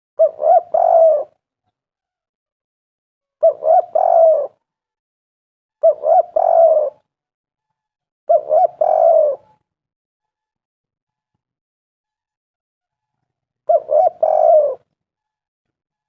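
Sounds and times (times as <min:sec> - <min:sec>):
dove cooing: 0:00.2 - 0:01.4, 0:03.4 - 0:04.6, 0:05.8 - 0:07.0, 0:08.3 - 0:09.6, 0:13.7 - 0:14.9.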